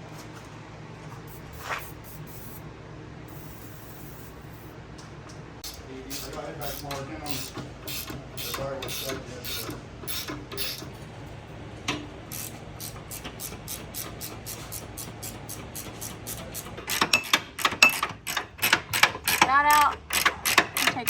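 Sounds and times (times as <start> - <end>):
ratchet wrench clicking: 3.3 - 4.7, 5.6 - 10.9, 12.3 - 21.0.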